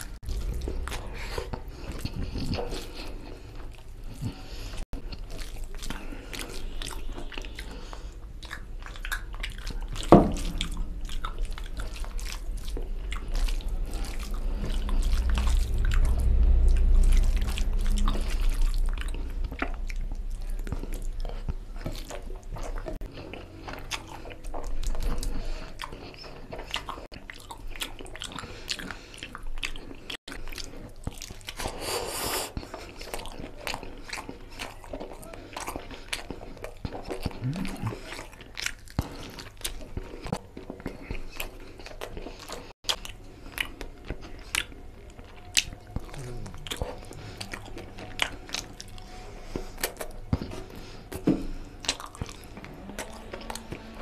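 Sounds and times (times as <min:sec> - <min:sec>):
low rumble: 0:00.0 - 0:04.6, 0:09.8 - 0:23.0, 0:37.3 - 0:38.1, 0:44.8 - 0:54.0
man chewing: 0:00.0 - 0:54.0.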